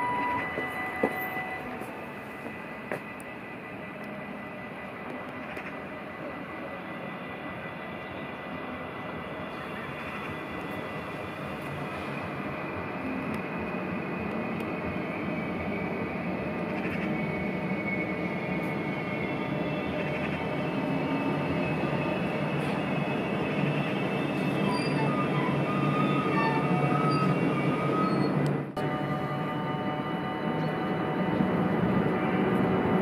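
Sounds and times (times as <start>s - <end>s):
train rumbling on rails: 0.0s - 33.0s
high wheel squeal: 16.4s - 28.4s.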